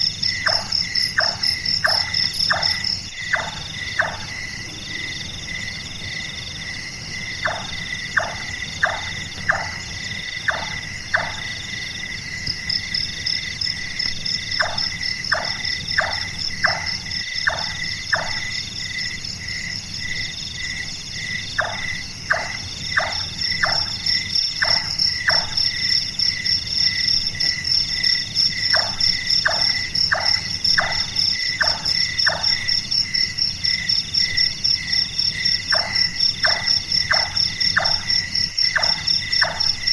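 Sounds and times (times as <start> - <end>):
night insects and frogs: 0.0 - 39.9
nightjar knocking calls: 0.4 - 4.3, 7.4 - 9.8, 10.4 - 11.6, 14.6 - 18.4, 28.7 - 32.6, 35.7 - 38.1, 38.7 - 39.9.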